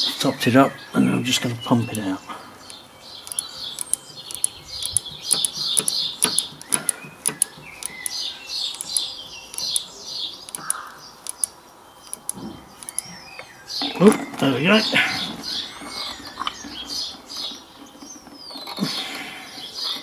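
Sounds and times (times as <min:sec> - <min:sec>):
songbird chirping: 0:00.0 - 0:20.0
sharp clicks: 0:01.8 - 0:14.6.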